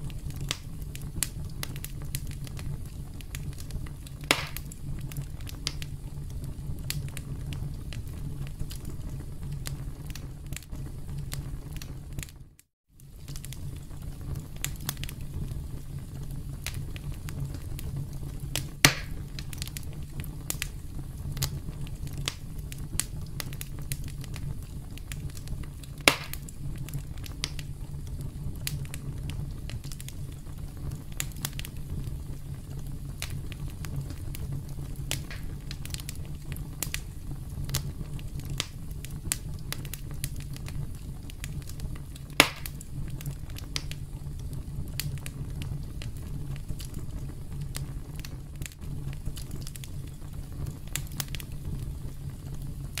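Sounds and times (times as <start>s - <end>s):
campfire crackling: 0.0s - 12.4s, 13.0s - 53.0s
loud sharp pops: 4.2s - 4.7s, 18.8s - 19.2s, 26.0s - 26.5s, 35.1s - 35.6s, 42.4s - 42.8s.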